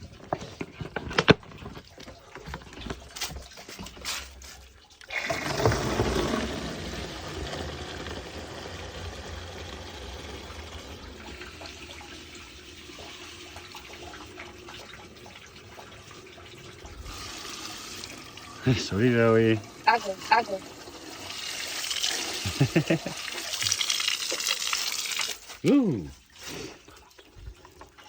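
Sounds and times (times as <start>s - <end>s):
water pouring out: 0.0s - 28.0s.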